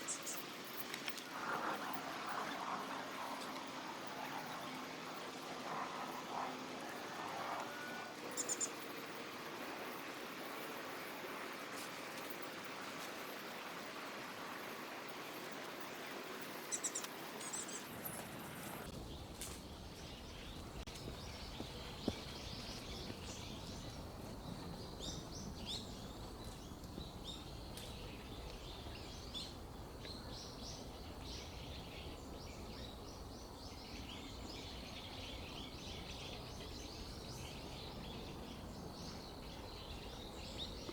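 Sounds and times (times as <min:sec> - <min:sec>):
small birds chirping: 0:08.3 - 0:08.9, 0:16.6 - 0:40.9.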